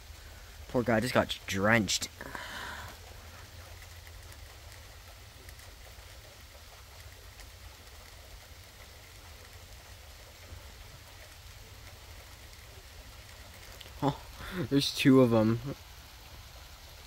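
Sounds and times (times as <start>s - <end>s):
low steady rumble: 0.0s - 17.0s
rain hiss: 0.0s - 17.0s
raindrop ticks: 0.0s - 17.0s.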